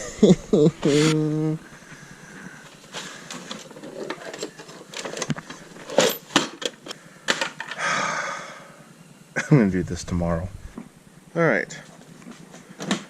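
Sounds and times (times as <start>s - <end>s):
hands handling parts and tools: 2.6s - 7.8s.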